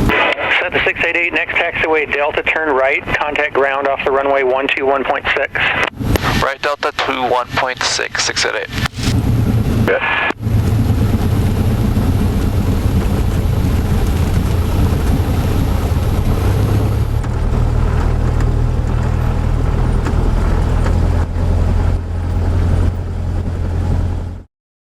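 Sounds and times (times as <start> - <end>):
light aircraft piston engine: 5.4 - 24.4.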